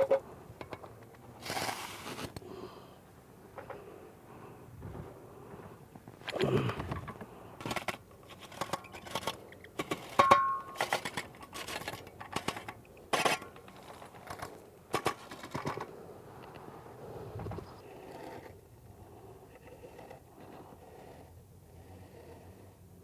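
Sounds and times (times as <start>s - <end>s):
hand tools scraping mortar: 0.9s - 2.4s, 6.3s - 15.9s.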